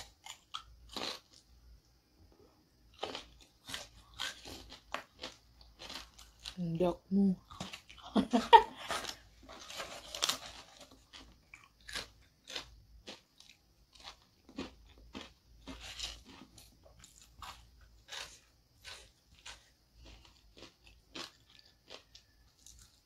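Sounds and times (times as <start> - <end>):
person chewing crunchy food: 0.0 - 1.6, 2.8 - 6.6, 7.4 - 23.0.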